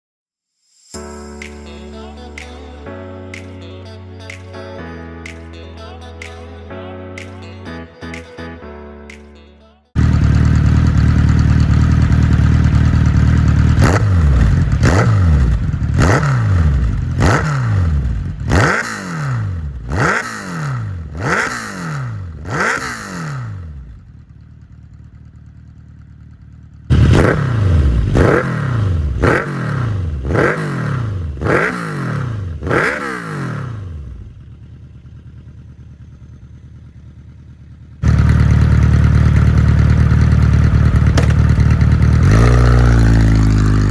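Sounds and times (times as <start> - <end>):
motorcycle engine idling and revving: 10.0 - 43.9.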